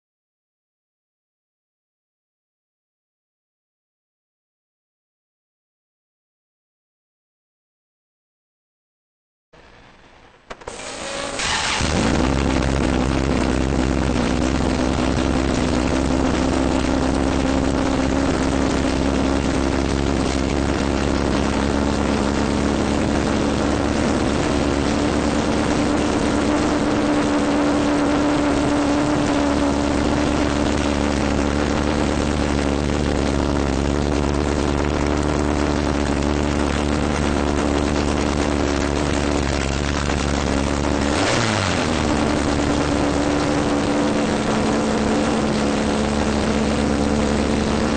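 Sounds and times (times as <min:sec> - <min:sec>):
car engine starting and idling: 0:09.6 - 0:47.9.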